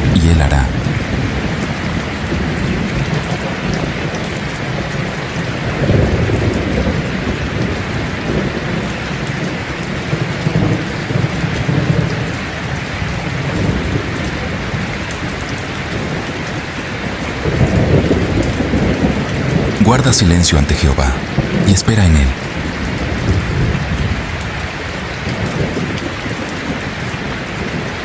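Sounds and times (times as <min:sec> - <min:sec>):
thunder rumbling: 0:00.0 - 0:09.2
heavy rain: 0:00.0 - 0:28.0.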